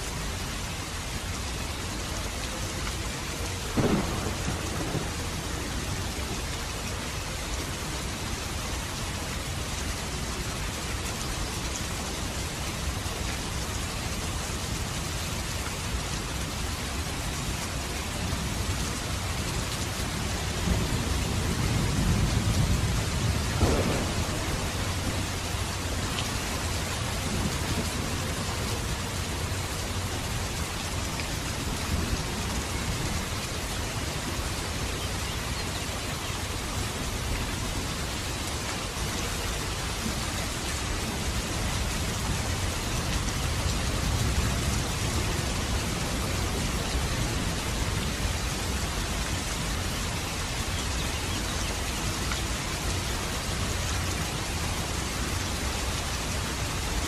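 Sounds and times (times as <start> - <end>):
rain falling: 0.0 - 57.0
thunder rumble: 3.7 - 6.3, 20.4 - 29.6
thunder crack: 3.8 - 5.4, 23.5 - 25.2.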